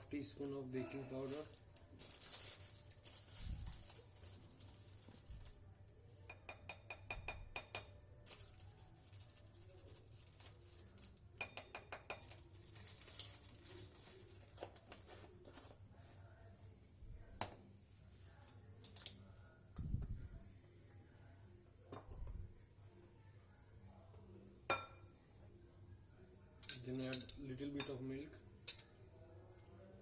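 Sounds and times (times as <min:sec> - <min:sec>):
spoon clinking against dish: 0:06.3 - 0:08.0, 0:11.4 - 0:12.4, 0:26.6 - 0:29.0.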